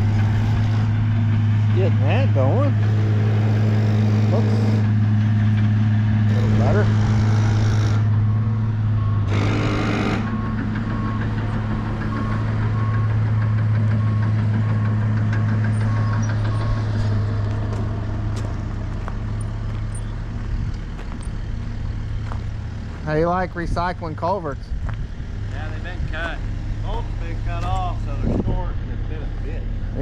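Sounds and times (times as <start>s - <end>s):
diesel truck engine running: 0.0s - 30.0s
reversing alarm beeping: 6.4s - 17.5s.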